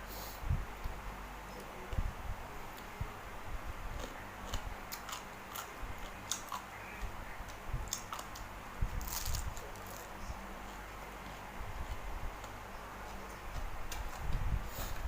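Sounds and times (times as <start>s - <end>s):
close-up chewing: 4.0s - 15.0s.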